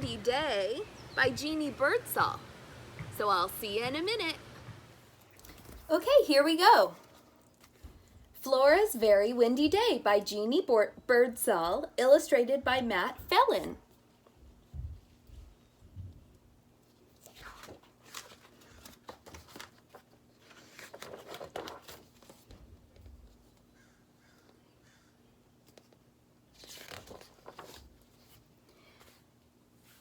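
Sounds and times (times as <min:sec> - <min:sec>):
paper pages being turned: 0:16.8 - 0:23.7, 0:25.6 - 0:30.0.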